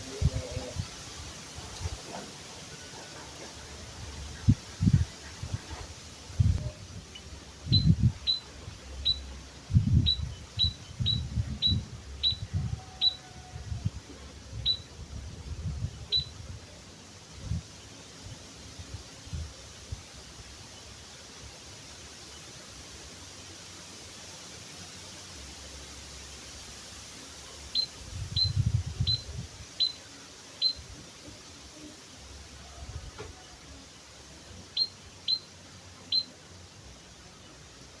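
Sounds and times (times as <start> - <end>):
steady hiss: 0.0 - 38.0
bird chirping: 6.6 - 13.3, 15.8 - 16.4, 27.7 - 30.8, 34.6 - 36.4.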